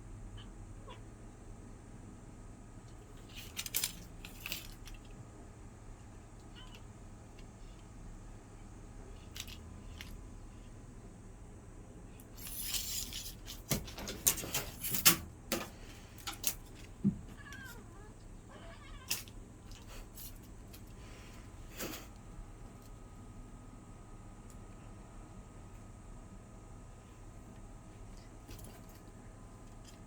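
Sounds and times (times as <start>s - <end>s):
cat meowing: 6.5s - 6.9s, 17.3s - 19.3s.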